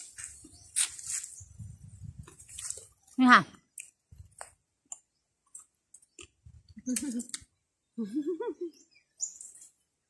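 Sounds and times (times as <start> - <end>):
wet chewing and sucking: 2.2 - 3.1.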